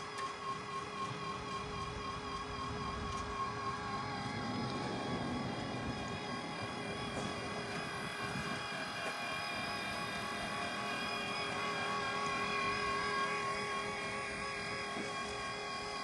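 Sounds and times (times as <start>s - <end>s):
machinery humming with whining tones: 0.0s - 16.0s.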